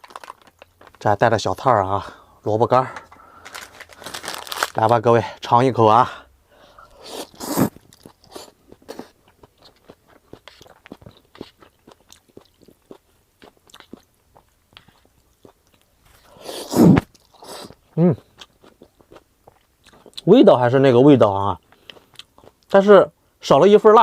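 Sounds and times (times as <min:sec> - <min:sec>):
person chewing noodles: 0:06.8 - 0:20.3, 0:21.6 - 0:22.7.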